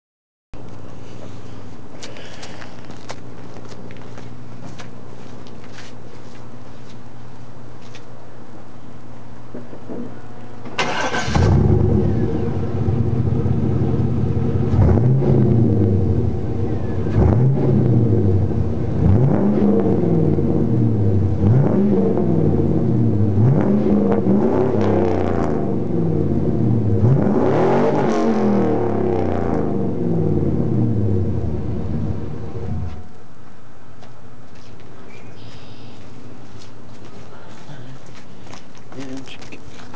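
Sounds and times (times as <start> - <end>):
truck engine revving and idling: 10.9 - 33.0.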